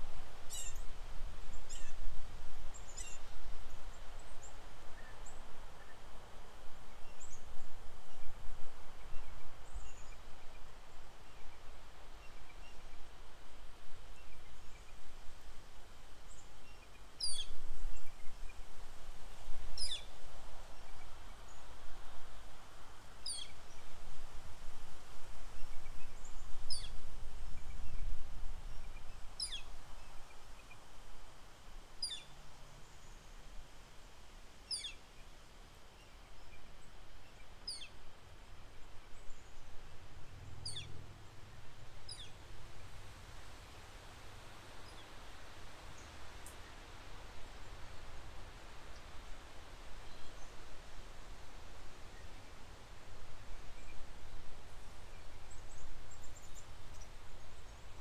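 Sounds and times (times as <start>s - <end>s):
wind rumbling on microphone: 0.0s - 35.0s.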